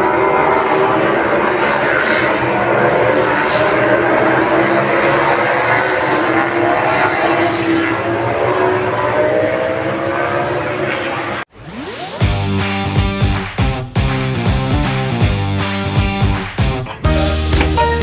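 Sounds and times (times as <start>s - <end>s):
engine drone: 0.0s - 13.1s.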